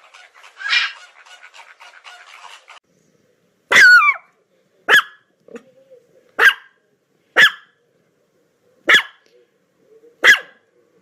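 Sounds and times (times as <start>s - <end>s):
dog barking: 3.7s - 4.2s, 4.9s - 5.3s, 6.4s - 6.8s, 7.4s - 7.8s, 8.8s - 9.2s, 10.2s - 10.6s.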